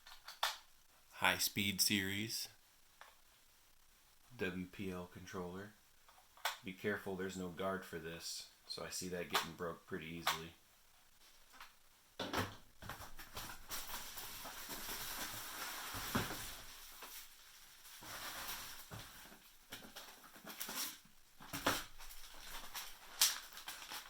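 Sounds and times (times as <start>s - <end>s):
plastic and paper crinkling: 12.8s - 24.0s.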